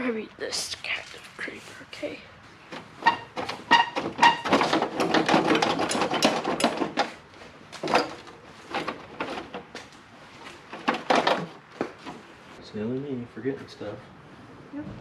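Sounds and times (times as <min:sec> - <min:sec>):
continuous rattling: 0:02.6 - 0:12.3
tools knocking: 0:02.7 - 0:07.1
metal clanks: 0:02.7 - 0:07.2.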